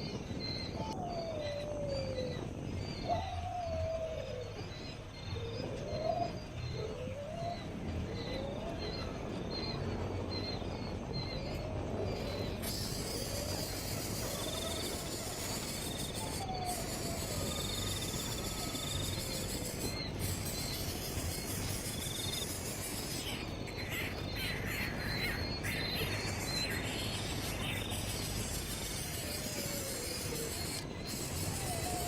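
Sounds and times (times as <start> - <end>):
birds chirping: 0.0 - 32.0
background hiss: 11.8 - 32.0
bird trilling calls: 12.5 - 32.0.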